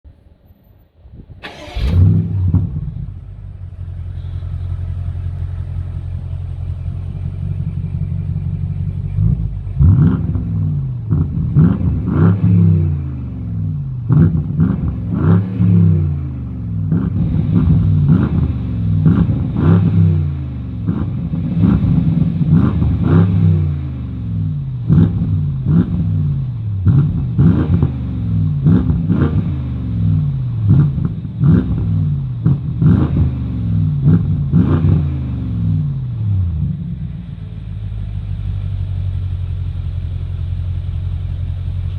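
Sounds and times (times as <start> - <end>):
car engine idling: 0.1 - 15.2, 35.3 - 41.9
engine cranking: 1.1 - 8.3
engine revving: 1.1 - 41.9.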